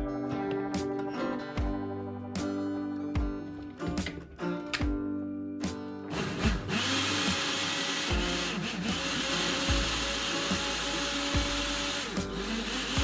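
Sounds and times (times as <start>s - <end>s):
guitar music: 0.0s - 13.0s
small electric motor whining: 6.1s - 13.0s.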